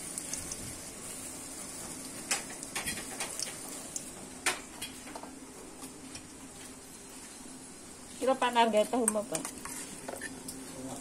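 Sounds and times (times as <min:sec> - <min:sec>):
wontons sizzling in oil: 0:00.0 - 0:11.0.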